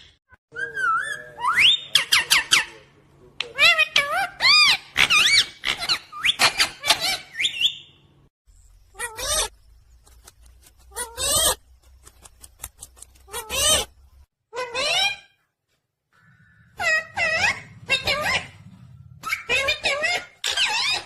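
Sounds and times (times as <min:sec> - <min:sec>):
parrot chirping and squawking: 0:03.5 - 0:08.0, 0:08.9 - 0:09.5, 0:10.9 - 0:11.6, 0:13.2 - 0:13.9, 0:14.5 - 0:15.4, 0:16.2 - 0:21.0.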